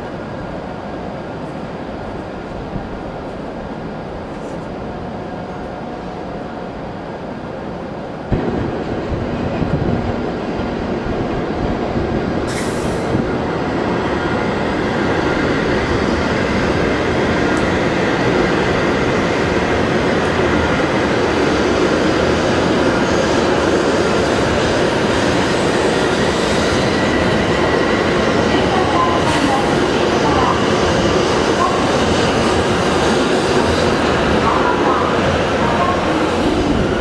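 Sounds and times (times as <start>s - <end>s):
train pulling out: 8.3s - 37.0s.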